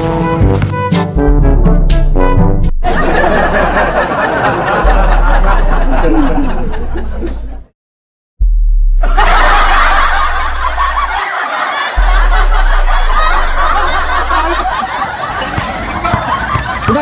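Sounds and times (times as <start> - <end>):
deep steady bass note: 0.4 - 7.5, 8.4 - 11.2, 12.0 - 14.8
group of people laughing: 2.8 - 7.7, 9.0 - 17.0.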